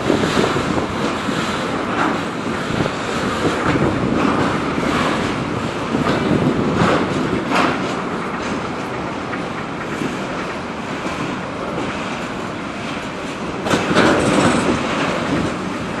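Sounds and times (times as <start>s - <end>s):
freight train wheels rumbling: 0.0s - 16.0s
wheels clacking over rail joints: 0.0s - 16.0s.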